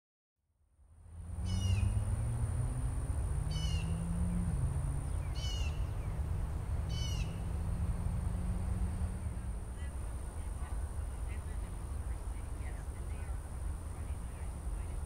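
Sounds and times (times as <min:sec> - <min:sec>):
steady low rumble: 0:00.8 - 0:15.0
bird downward-sliding call: 0:03.5 - 0:04.0.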